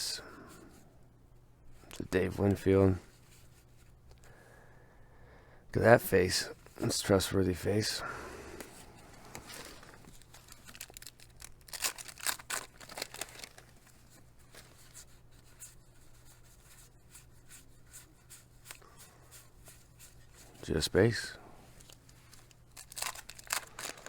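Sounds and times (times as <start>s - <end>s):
steady low hum: 0.0s - 24.0s
paper packs and cards crinkling: 9.2s - 15.2s, 20.6s - 24.0s.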